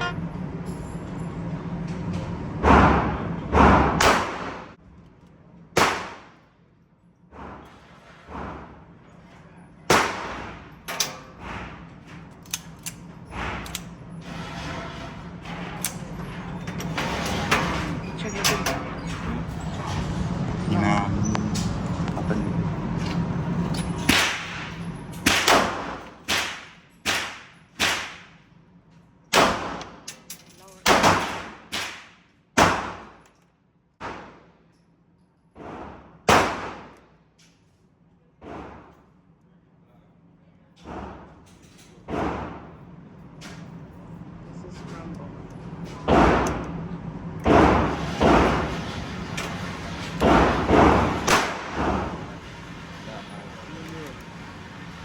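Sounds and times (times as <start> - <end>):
gunshots with echoing tail: 2.7 - 4.7, 5.8 - 6.4, 50.2 - 52.0
gunshots with echo: 50.2 - 52.0.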